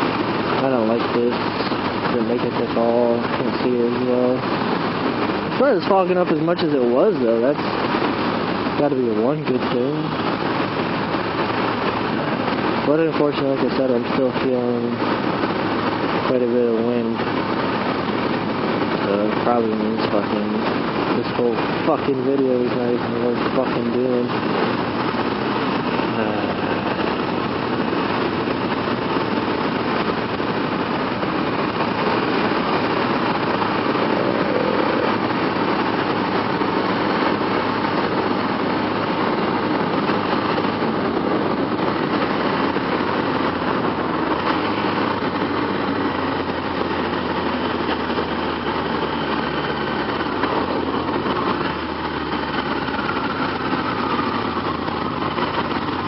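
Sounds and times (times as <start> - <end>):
motorcycle engine running: 0.0 - 56.0
wind rush inside helmet: 0.0 - 56.0.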